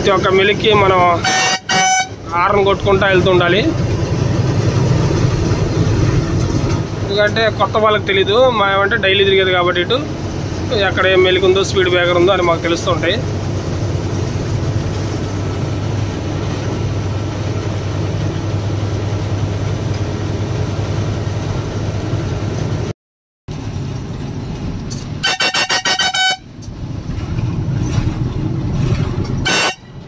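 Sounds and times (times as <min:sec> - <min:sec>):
truck diesel engine droning: 0:00.0 - 0:22.9, 0:23.5 - 0:30.0
truck horn pulsing blast: 0:01.1 - 0:02.3, 0:25.2 - 0:26.5, 0:29.4 - 0:30.0.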